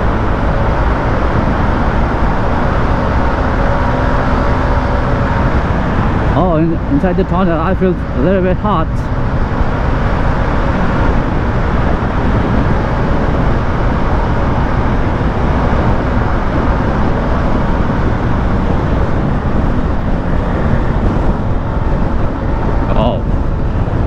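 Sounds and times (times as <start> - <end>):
traffic din in tunnel: 0.0 - 24.0
wind and road noise: 0.0 - 24.0.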